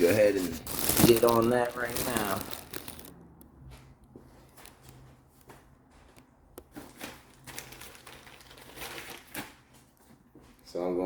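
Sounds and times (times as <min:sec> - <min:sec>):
faint rustling of supplies: 0:00.0 - 0:11.0.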